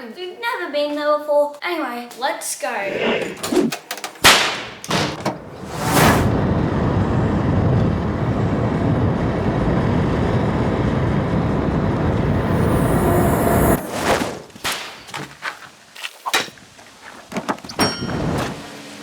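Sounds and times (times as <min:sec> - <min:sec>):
car road and engine noise: 0:04.8 - 0:13.9, 0:17.9 - 0:19.0.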